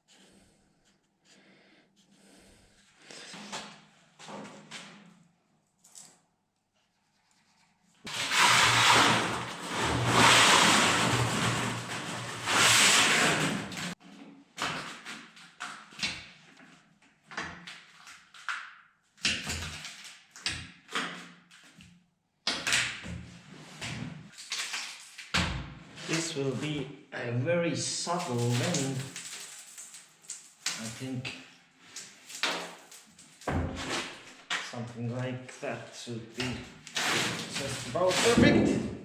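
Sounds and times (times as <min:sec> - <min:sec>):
knocks and scrapes: 0:08.0 - 0:15.2, 0:31.8 - 0:34.7, 0:36.4 - 0:39.0
workshop machine running: 0:08.1 - 0:13.9.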